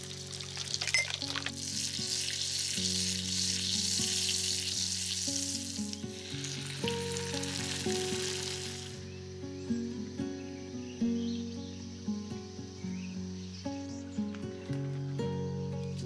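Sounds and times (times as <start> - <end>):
food sizzling in oil: 0.0 - 9.1
soft background music: 0.0 - 16.0.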